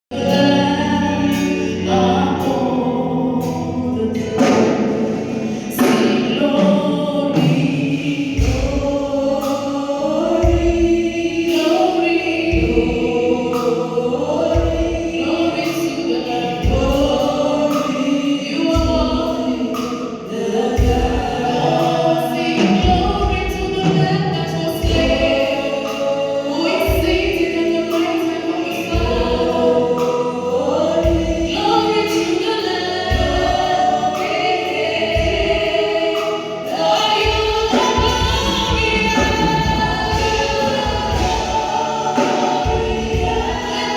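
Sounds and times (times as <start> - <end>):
choir singing with music: 0.1 - 43.9
low thudding beat: 37.2 - 43.9.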